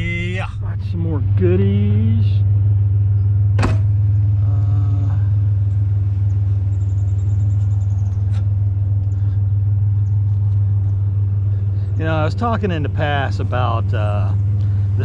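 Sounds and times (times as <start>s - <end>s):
truck engine running: 0.0s - 15.0s
sharp knock: 3.6s - 3.9s.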